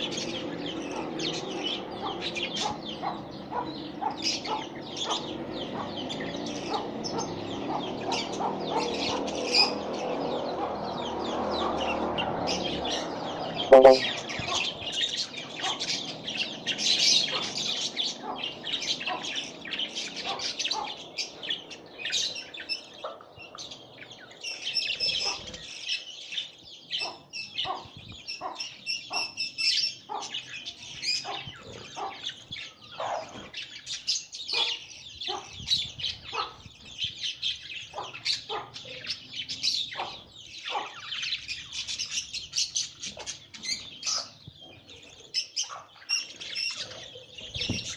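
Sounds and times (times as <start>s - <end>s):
budgerigars chirping and chattering: 0.0s - 47.9s.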